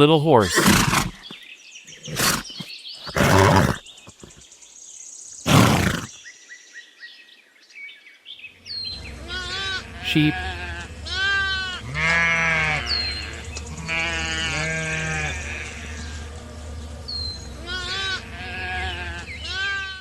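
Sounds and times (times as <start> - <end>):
sheep bleating: 2.0 - 4.4, 5.5 - 6.1, 9.2 - 16.2, 17.6 - 20.0
steady low hum: 14.9 - 19.5.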